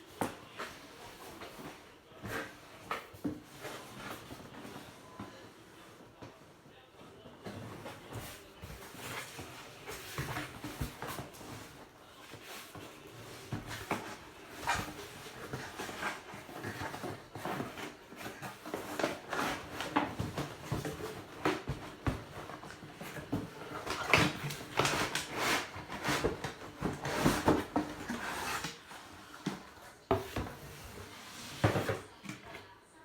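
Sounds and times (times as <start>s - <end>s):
packaging rustling and knocking: 12.4s - 32.2s.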